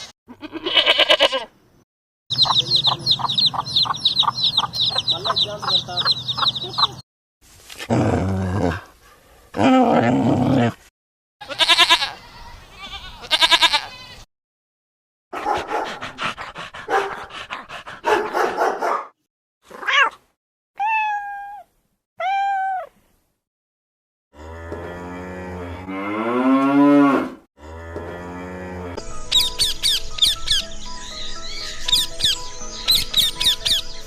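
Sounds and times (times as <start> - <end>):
clicky grunting animal pulses: 15.8 - 18.5.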